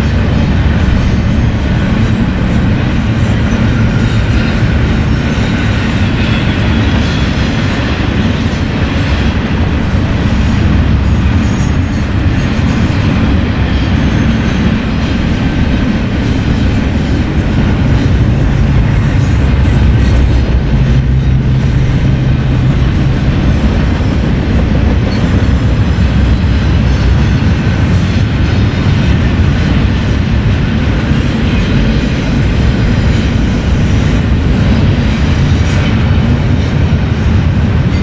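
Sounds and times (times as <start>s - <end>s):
freight train rumbling past: 0.0s - 38.0s
train clatter: 0.0s - 38.0s.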